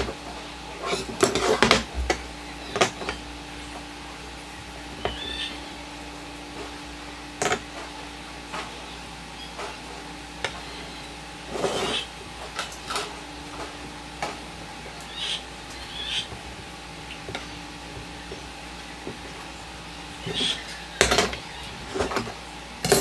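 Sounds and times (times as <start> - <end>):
steady hum: 0.0 - 23.0
scraping rustle: 11.4 - 14.5.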